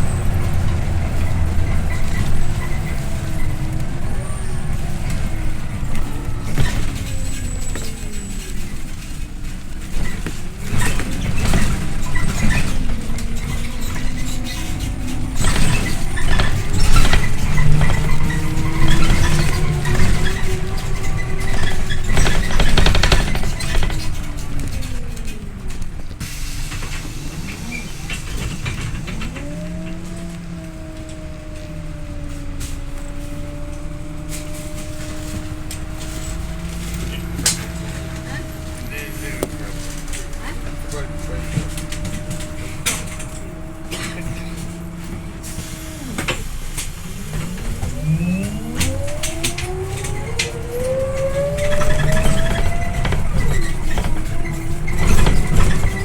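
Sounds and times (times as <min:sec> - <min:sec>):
body clicks and rattles: 0:00.0 - 0:56.0
bus engine drone: 0:00.0 - 0:56.0
mechanical whine: 0:41.0 - 0:56.0.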